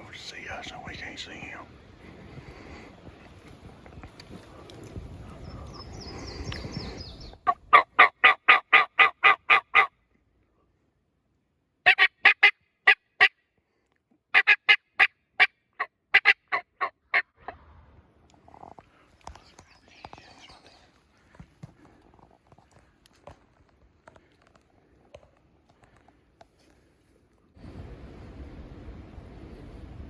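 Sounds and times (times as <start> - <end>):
wild turkey yelping: 7.4 - 9.9, 11.9 - 13.3, 14.3 - 17.6.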